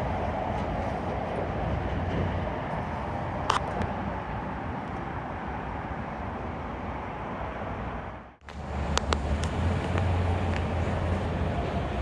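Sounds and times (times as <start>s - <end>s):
train wheels rumbling on rail: 0.0s - 5.3s, 8.4s - 12.0s.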